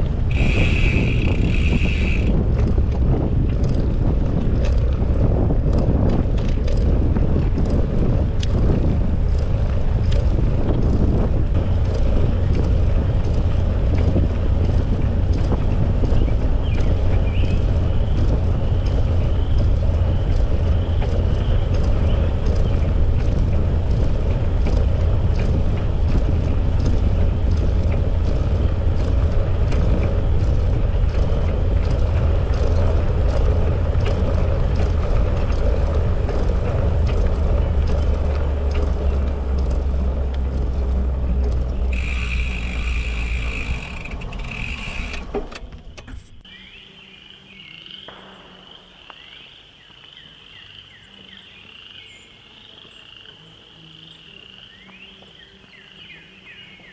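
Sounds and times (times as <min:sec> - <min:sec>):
wind buffeting microphone: 0:00.0 - 0:46.5
bicycle rolling on trail: 0:00.0 - 0:47.0
frogs calling: 0:00.3 - 0:02.3, 0:41.9 - 0:45.3, 0:46.5 - 0:56.7
high squeal: 0:00.3 - 0:02.3, 0:41.9 - 0:45.4.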